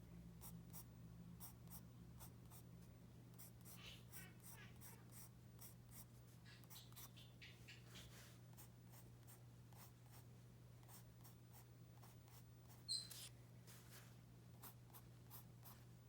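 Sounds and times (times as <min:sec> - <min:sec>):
high-pitched chirp: 0:12.9 - 0:13.2.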